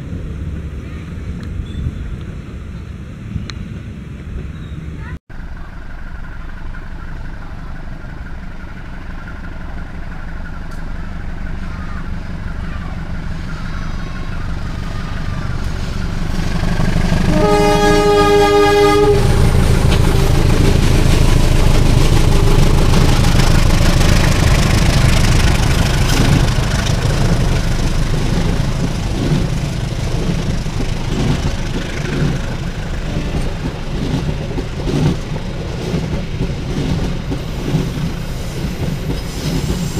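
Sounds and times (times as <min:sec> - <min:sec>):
locomotive rumbling: 0:00.0 - 0:39.9
train wheels clattering over rails: 0:08.0 - 0:39.9
locomotive horn blast: 0:17.1 - 0:20.7.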